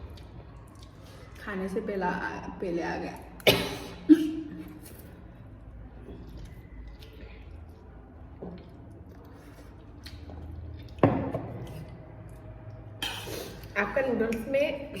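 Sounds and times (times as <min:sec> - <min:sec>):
wet squishy chewing: 0:00.0 - 0:01.5, 0:04.6 - 0:14.5.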